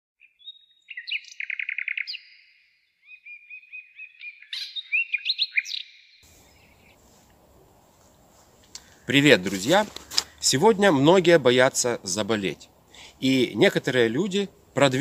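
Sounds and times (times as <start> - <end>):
birds chirping and whistling: 0.2 - 7.0
faint outdoor hiss: 6.2 - 15.0.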